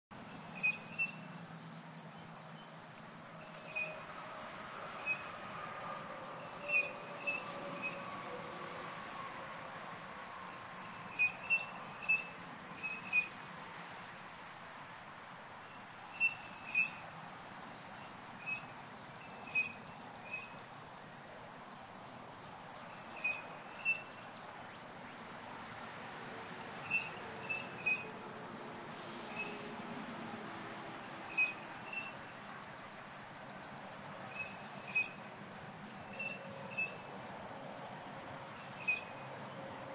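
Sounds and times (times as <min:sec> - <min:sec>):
shrill bird whistle calls: 0:00.3 - 0:01.3, 0:03.4 - 0:04.1, 0:05.0 - 0:05.3, 0:06.4 - 0:08.1, 0:10.8 - 0:13.4, 0:16.0 - 0:17.1, 0:18.4 - 0:20.6, 0:22.9 - 0:24.3, 0:26.8 - 0:28.1, 0:29.3 - 0:29.6, 0:31.1 - 0:32.2, 0:34.3 - 0:35.2, 0:35.9 - 0:37.1, 0:38.6 - 0:39.1.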